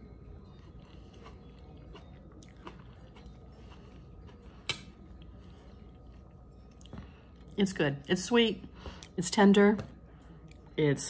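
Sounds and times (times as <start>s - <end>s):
person chewing soft food: 0.1s - 7.5s.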